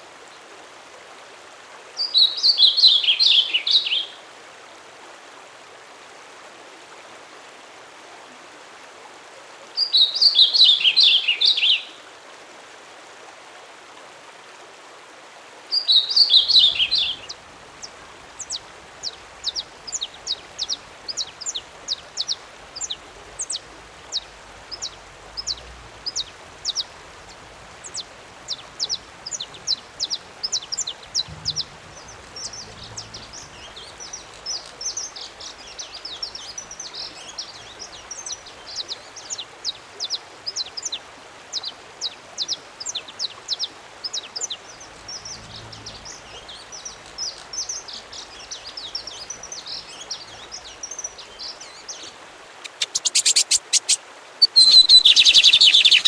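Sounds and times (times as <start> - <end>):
faint background hiss: 0.0 - 56.0
songbird singing: 2.0 - 4.2, 9.8 - 12.0, 15.7 - 56.0.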